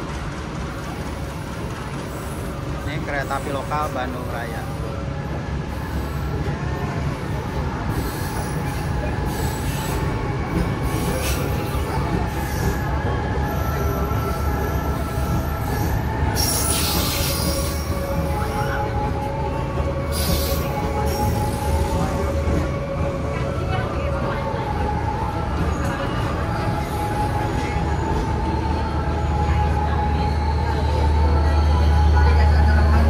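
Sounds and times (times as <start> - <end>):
diesel locomotive rumble: 0.0 - 33.0
train wheels squealing: 5.7 - 23.6, 24.6 - 33.0.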